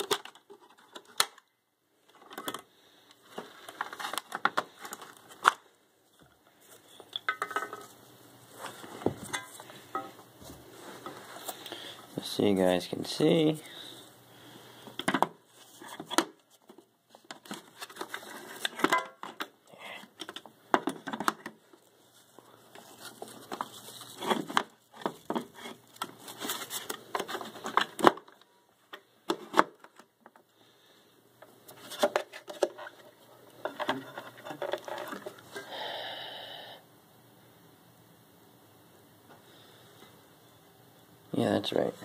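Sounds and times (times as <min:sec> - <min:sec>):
plastic parts clicking and rattling: 0:00.0 - 0:06.4, 0:15.0 - 0:21.9, 0:22.6 - 0:30.4, 0:31.8 - 0:35.6.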